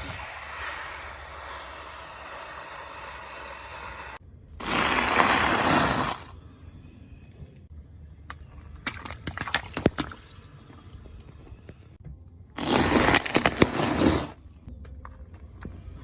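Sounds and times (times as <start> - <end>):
object crushed under car tyre: 12.6 - 14.4
sharp crackles and clicks: 12.6 - 14.7.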